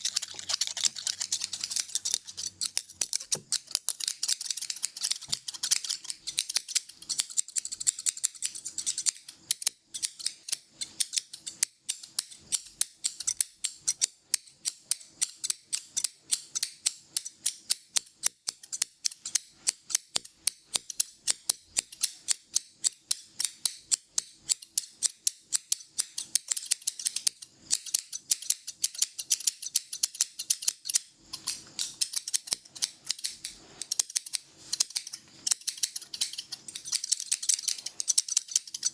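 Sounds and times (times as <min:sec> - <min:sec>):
scissors snipping: 0:00.0 - 0:09.2.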